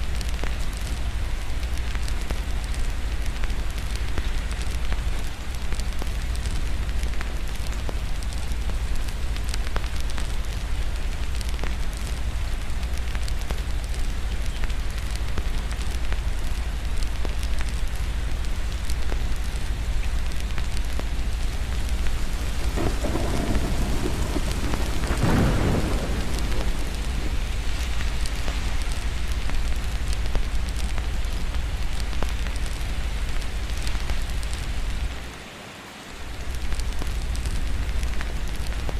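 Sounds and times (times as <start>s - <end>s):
steady rain: 0.0s - 38.9s
fireplace crackling: 16.8s - 35.0s
thunder rolling: 21.8s - 30.4s.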